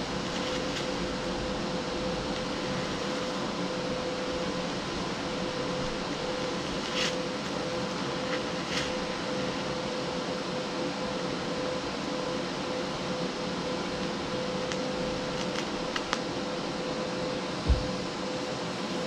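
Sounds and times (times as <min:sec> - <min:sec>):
welder crackles: 0:00.0 - 0:01.0, 0:05.8 - 0:07.6, 0:14.6 - 0:16.3
welder hissing and buzzing: 0:00.0 - 0:18.5.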